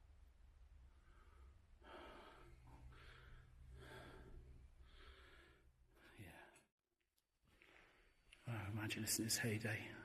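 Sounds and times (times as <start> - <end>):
faint breathing: 0.8 - 6.7.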